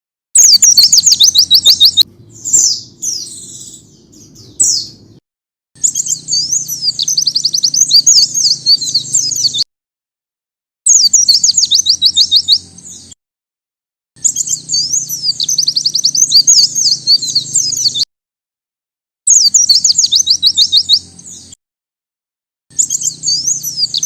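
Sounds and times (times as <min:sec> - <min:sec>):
bird singing high rapid phrases: 0:00.4 - 0:05.2, 0:05.8 - 0:09.7, 0:10.8 - 0:13.2, 0:14.2 - 0:18.1, 0:19.3 - 0:21.6, 0:22.7 - 0:24.0.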